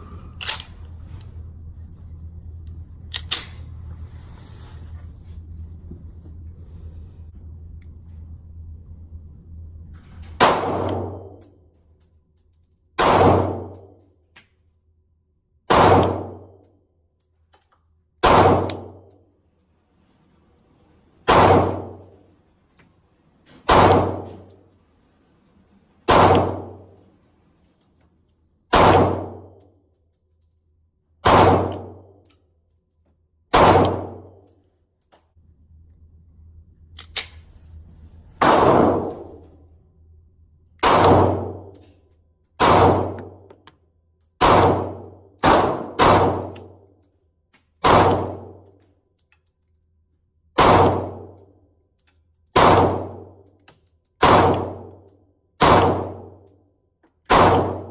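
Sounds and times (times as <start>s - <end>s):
pistol shots: 10.4s - 11.3s, 13.0s - 13.8s, 15.7s - 16.4s, 18.2s - 19.0s, 21.2s - 22.1s, 23.6s - 24.4s, 26.1s - 26.8s, 28.7s - 29.5s, 31.2s - 32.0s, 33.5s - 34.3s, 38.4s - 39.2s, 40.8s - 41.7s, 42.6s - 43.4s, 44.4s - 46.6s, 47.8s - 48.6s, 50.6s - 51.3s, 52.6s - 53.2s, 54.2s - 54.9s, 55.6s - 56.3s, 57.3s - 57.9s.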